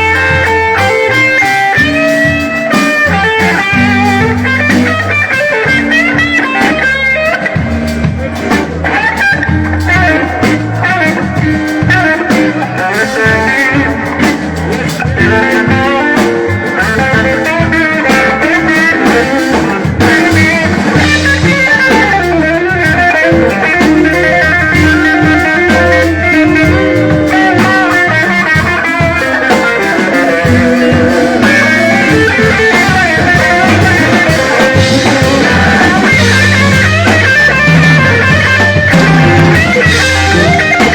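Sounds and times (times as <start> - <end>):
blues band playing: 0.0 - 40.9
electric guitar lead bending notes: 0.0 - 40.9.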